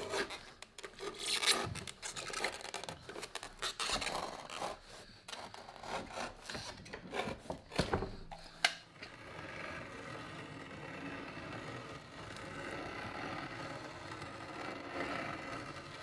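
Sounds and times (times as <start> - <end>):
hand tools scraping leather sole: 0.0 - 7.6.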